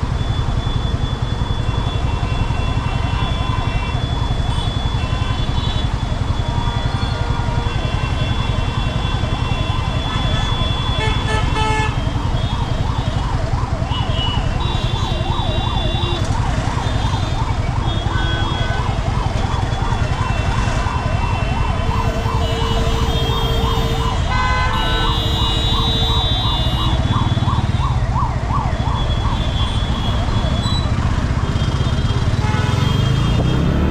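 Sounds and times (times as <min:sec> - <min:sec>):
siren yelping: 0:00.0 - 0:32.3
road traffic rumble: 0:00.0 - 0:33.9
vehicle horns honking: 0:06.8 - 0:12.1, 0:14.0 - 0:16.2, 0:17.8 - 0:18.9, 0:22.0 - 0:27.0, 0:31.6 - 0:33.9.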